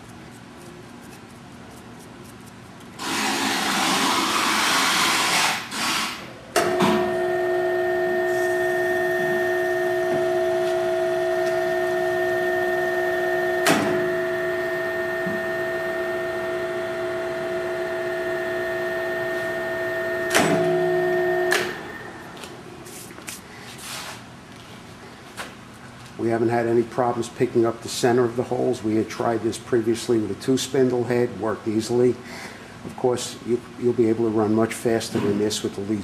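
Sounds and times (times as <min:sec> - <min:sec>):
electric motor humming: 0:03.0 - 0:05.5.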